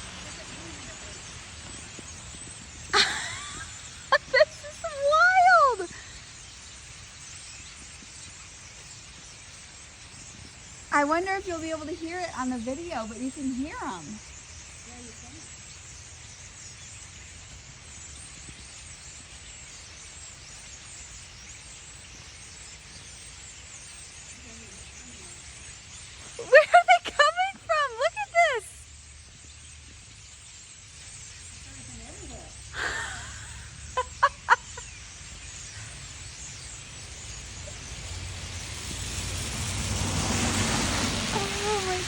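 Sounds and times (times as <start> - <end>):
flock of birds chirping: 0.0 - 42.0.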